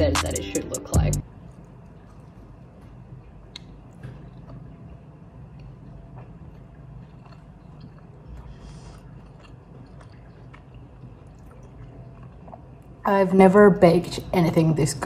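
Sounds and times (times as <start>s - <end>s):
person chewing cookie bar: 1.3s - 13.0s.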